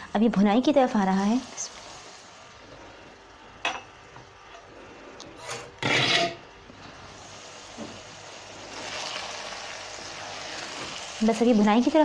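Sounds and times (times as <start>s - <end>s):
meat sizzling in a wok: 1.1s - 2.6s, 7.0s - 12.0s
spoon scraping a pan: 5.4s - 6.4s.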